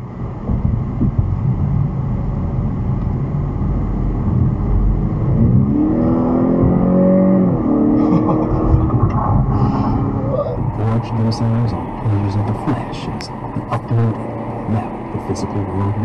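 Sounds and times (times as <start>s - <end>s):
car engine revving: 0.4s - 16.0s.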